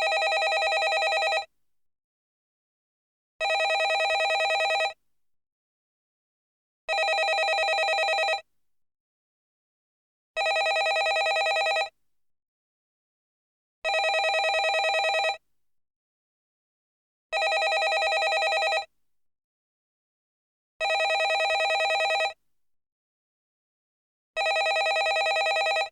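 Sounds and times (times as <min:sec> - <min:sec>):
landline telephone ringing: 0:00.0 - 0:01.5, 0:03.4 - 0:05.0, 0:06.9 - 0:08.4, 0:10.4 - 0:11.9, 0:13.9 - 0:15.4, 0:17.4 - 0:18.9, 0:20.8 - 0:22.4, 0:24.4 - 0:25.9.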